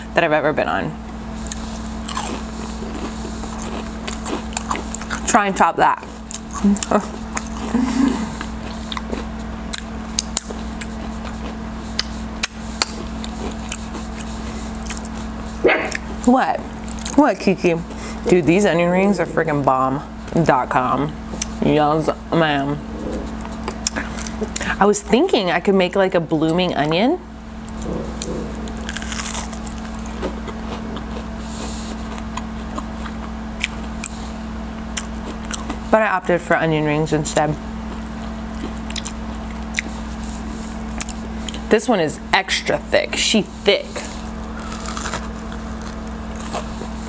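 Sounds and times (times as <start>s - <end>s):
low hum: 0.0s - 39.8s
chewing crispy food: 1.1s - 17.2s, 23.2s - 24.8s, 27.6s - 35.9s, 37.8s - 41.7s, 44.0s - 47.0s
crunchy onion ring bites: 1.5s - 5.2s, 28.7s - 31.3s, 44.4s - 47.0s.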